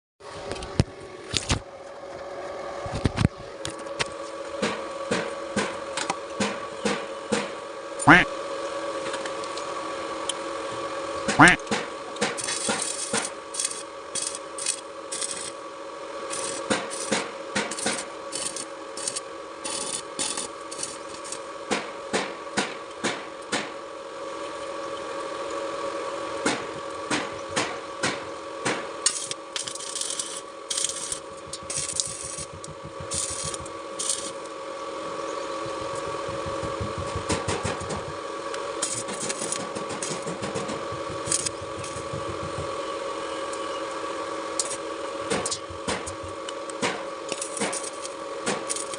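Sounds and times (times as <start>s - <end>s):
machine hum: 0.2s - 48.9s
hand tools tapping and scraping: 29.1s - 34.5s, 35.6s - 38.2s, 38.8s - 42.8s.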